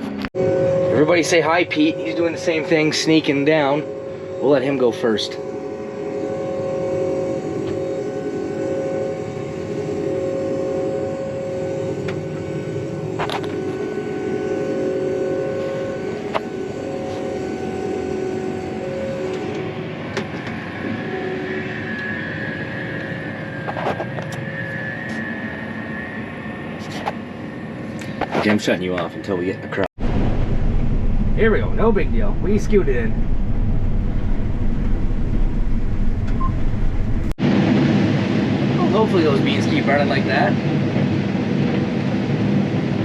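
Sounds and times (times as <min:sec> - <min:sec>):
steady whining tones: 0:00.0 - 0:43.0
combine harvester engine running: 0:30.0 - 0:37.7.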